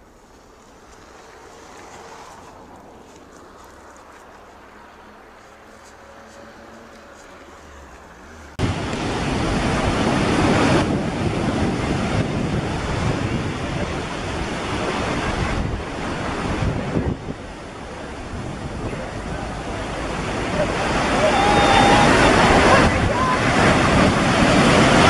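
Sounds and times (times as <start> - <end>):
wind: 0.0 - 25.0
surf rushing: 5.9 - 25.0.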